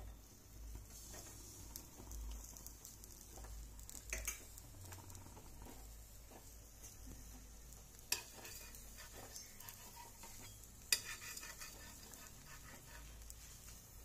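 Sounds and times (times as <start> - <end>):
egg sizzling in oil: 0.0 - 14.0
light clicks and scrapes: 8.1 - 13.9.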